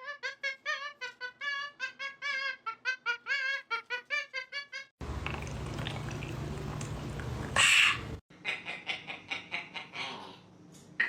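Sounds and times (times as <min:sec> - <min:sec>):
low room hum: 0:05.0 - 0:11.0
parrot squawk: 0:07.6 - 0:10.1.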